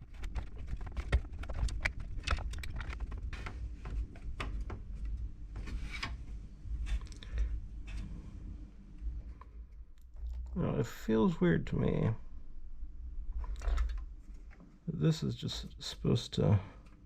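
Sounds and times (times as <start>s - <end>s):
hands clicking plastic and metal parts: 0.1s - 3.6s.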